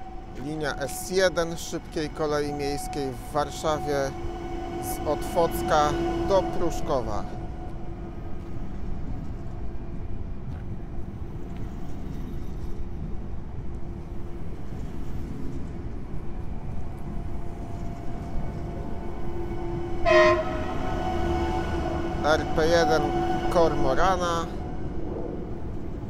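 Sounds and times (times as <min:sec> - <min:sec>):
train horn blast: 0:00.0 - 0:09.0, 0:17.7 - 0:25.6
electric train rumbling: 0:00.0 - 0:26.0.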